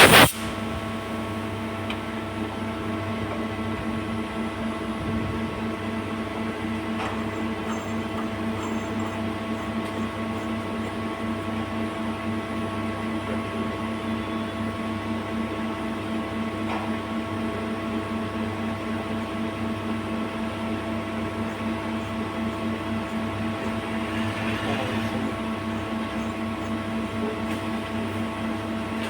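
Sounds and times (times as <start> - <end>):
lathe humming: 21.0 - 26.7.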